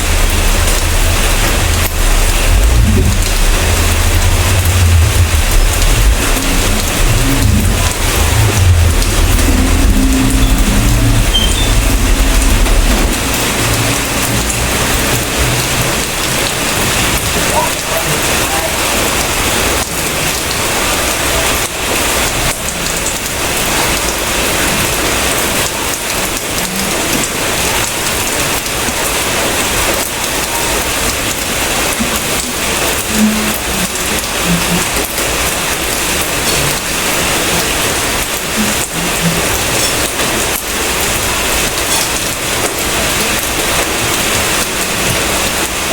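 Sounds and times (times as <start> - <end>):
low rumble: 0.0 - 17.5
dense rainfall: 0.0 - 45.9.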